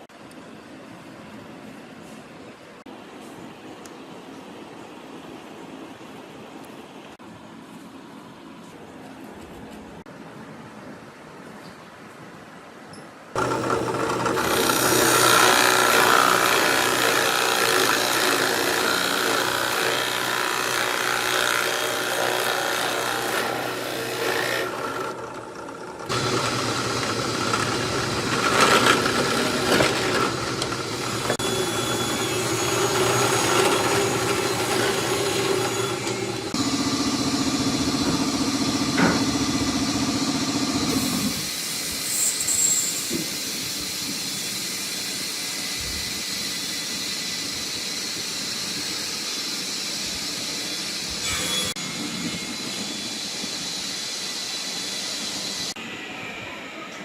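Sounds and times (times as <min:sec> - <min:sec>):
grinding and rubbing wood: 0:13.4 - 0:36.9
power tool motor hum: 0:13.4 - 0:41.5.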